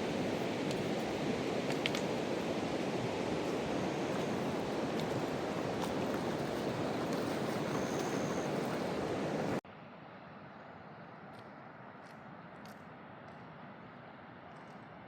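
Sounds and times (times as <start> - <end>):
river rushing: 0.0 - 9.6
faint clicks: 1.7 - 2.1.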